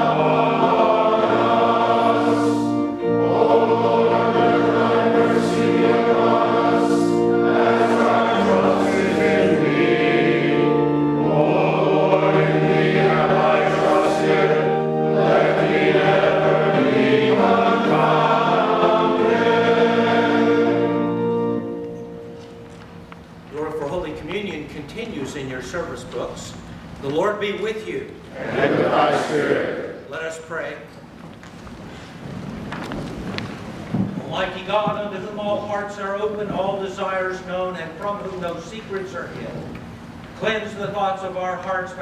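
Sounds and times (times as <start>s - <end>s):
choir singing a hymn: 0.0s - 22.4s, 28.3s - 30.1s.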